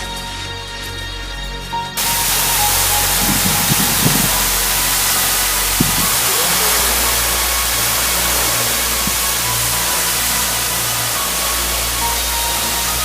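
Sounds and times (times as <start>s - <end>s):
faint low knocks: 2.0s - 11.1s
waterfall rushing: 2.0s - 13.0s.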